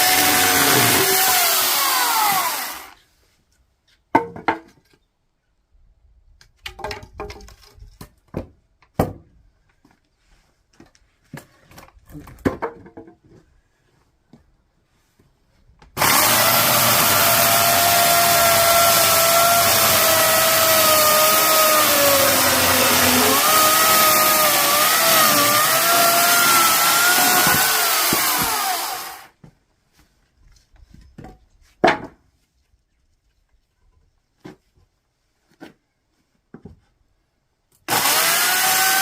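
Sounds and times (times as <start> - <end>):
electric chainsaw cutting wood: 0.0 - 3.0, 16.0 - 29.3, 37.9 - 39.0.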